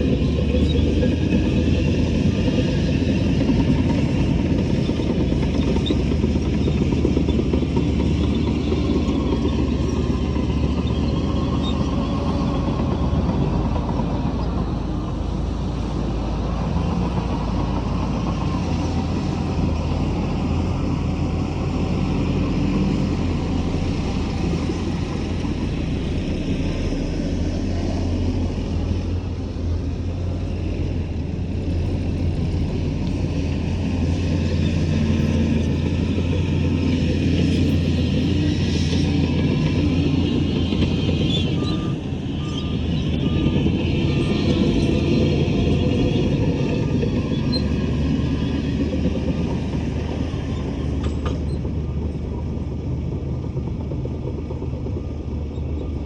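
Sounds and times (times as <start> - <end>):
heavy diesel engine rumbling: 0.0 - 56.0.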